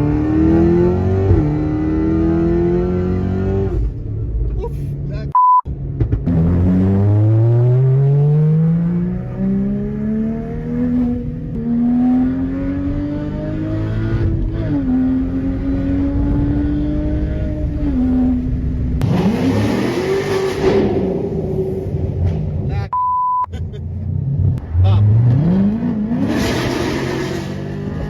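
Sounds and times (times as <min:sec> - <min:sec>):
car engine accelerating: 0:00.0 - 0:04.6, 0:05.7 - 0:22.7
short beep: 0:05.3 - 0:05.7, 0:22.9 - 0:23.5.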